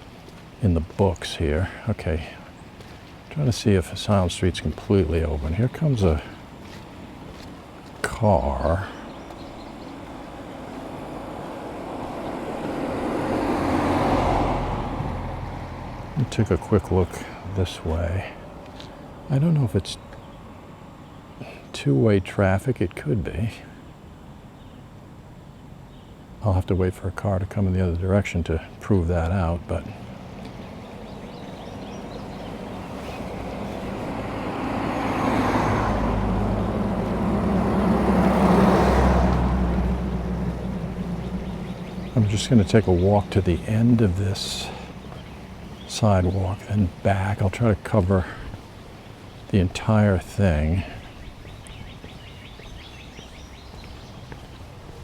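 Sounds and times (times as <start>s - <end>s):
car driving past: 5.5s - 19.3s, 29.9s - 55.0s.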